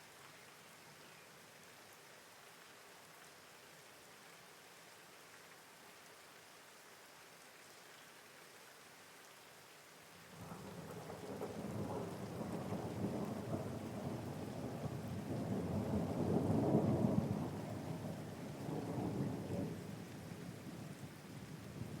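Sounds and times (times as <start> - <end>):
steady rain: 0.0 - 22.0
low rumble of thunder: 10.3 - 22.0.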